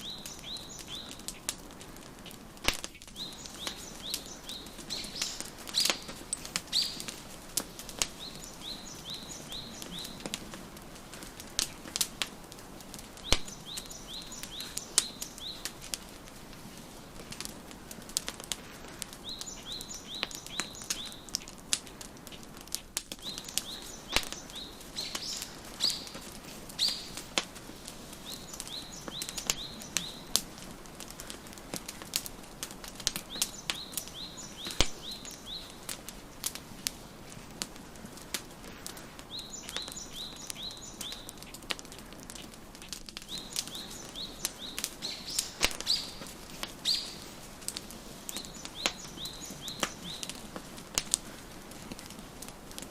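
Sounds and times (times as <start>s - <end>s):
songbird chirping: 0.0s - 1.6s, 3.0s - 16.7s, 19.0s - 21.5s, 23.2s - 31.4s, 32.3s - 36.7s, 39.2s - 41.8s, 43.2s - 51.0s
wood fire crackling: 0.0s - 52.9s.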